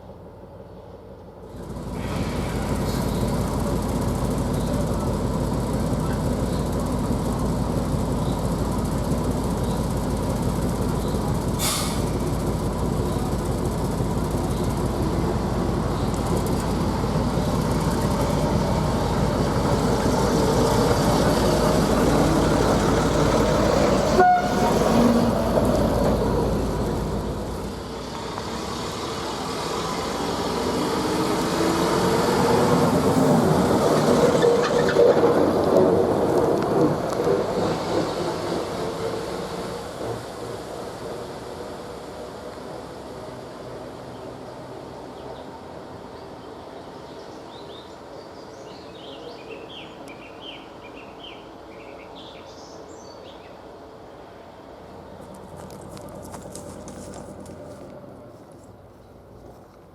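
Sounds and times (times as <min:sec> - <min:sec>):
bus diesel engine running: 0:00.1 - 0:59.9.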